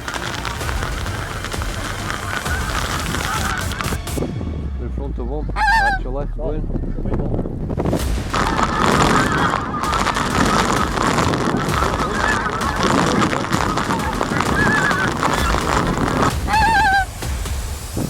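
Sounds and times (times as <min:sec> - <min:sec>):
close goose call: 0:00.0 - 0:04.0, 0:05.6 - 0:06.1, 0:08.3 - 0:17.1
geese honking in chorus: 0:00.0 - 0:04.2, 0:05.6 - 0:06.0, 0:08.2 - 0:17.2
wind rumble on microphone: 0:00.0 - 0:18.0.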